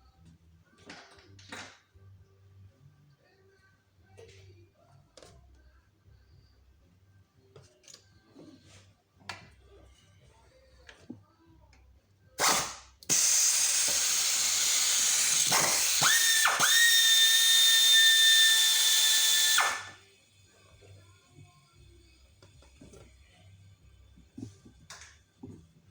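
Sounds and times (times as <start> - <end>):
power tool motor whining: 12.4 - 20.0.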